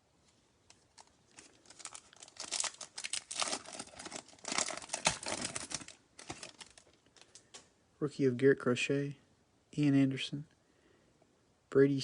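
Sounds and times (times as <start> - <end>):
foil wrapper tearing and crinkling: 1.0 - 7.4.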